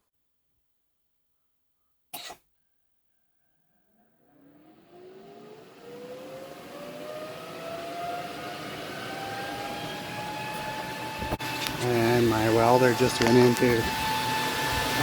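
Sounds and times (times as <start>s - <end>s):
rising whine: 4.2s - 15.0s
welding hiss: 10.4s - 15.0s.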